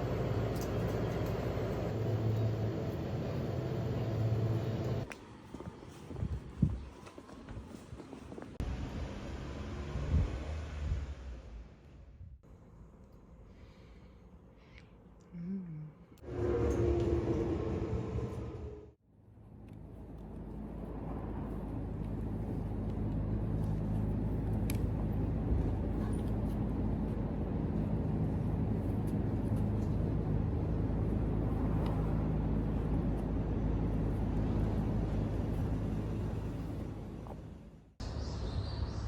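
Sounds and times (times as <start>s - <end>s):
low vehicle rumble: 16.2s - 39.0s.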